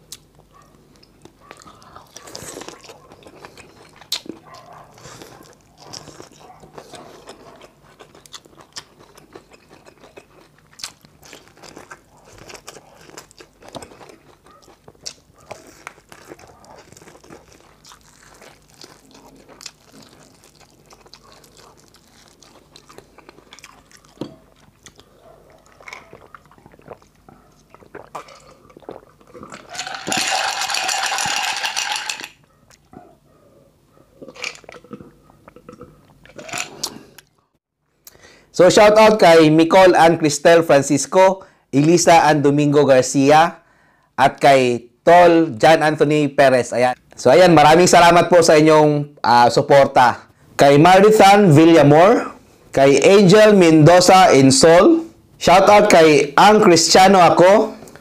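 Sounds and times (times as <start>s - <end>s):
person chewing corn: 0.0s - 33.3s, 33.9s - 38.2s.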